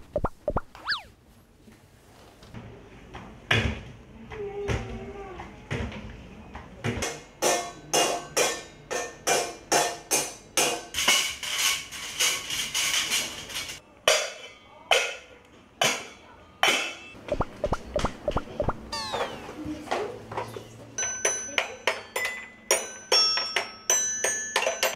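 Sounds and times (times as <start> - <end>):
metal utensils clattering: 10.9 - 13.8
household objects knocked and rattled: 17.3 - 18.8.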